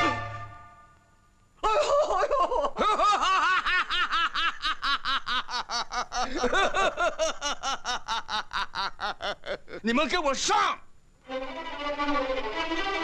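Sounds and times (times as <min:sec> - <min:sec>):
people laughing: 0:01.6 - 0:09.9.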